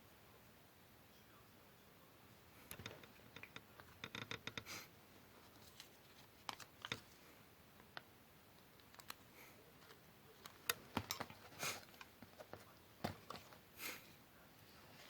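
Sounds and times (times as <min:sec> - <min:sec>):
paper rustling: 0:05.4 - 0:07.2.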